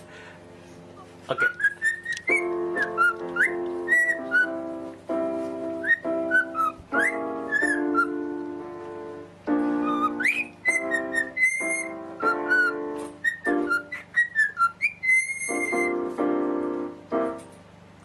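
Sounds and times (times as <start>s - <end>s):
bird whistling sliding notes: 1.3s - 4.7s, 5.6s - 8.2s, 9.7s - 16.1s
music with held chords: 2.2s - 14.1s, 15.5s - 18.0s.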